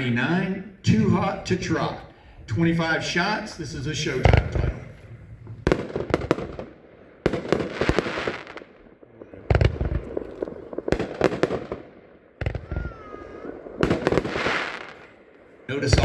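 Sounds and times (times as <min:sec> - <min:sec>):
fireworks shots bursting: 0:04.0 - 0:16.0
sharp pops and crackle: 0:12.4 - 0:13.0.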